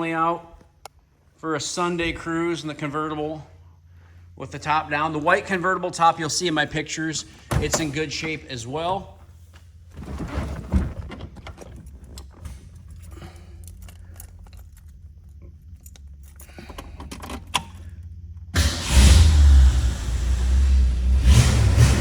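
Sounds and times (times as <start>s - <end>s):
car engine starting and rumbling: 3.9s - 22.0s
keys jingling: 11.6s - 18.0s.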